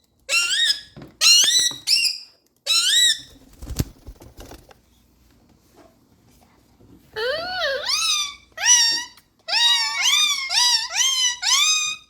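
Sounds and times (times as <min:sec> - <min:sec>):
parrot high-pitched calls: 0:00.3 - 0:03.3, 0:07.2 - 0:12.0.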